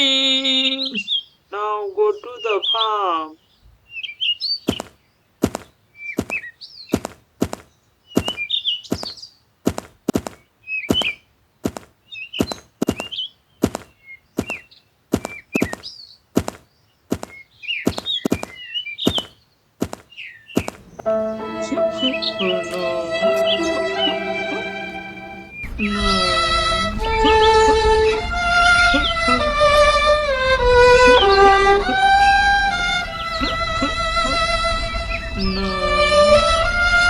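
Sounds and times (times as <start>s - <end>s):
birds chirping: 0.0s - 9.4s, 10.1s - 37.0s
music with steady tones: 20.8s - 37.0s.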